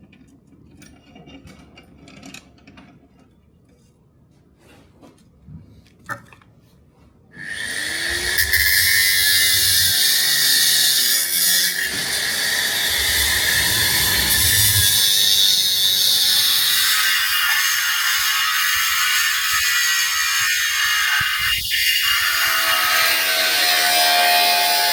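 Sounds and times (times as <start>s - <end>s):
power grinder grinding metal: 7.4s - 24.9s.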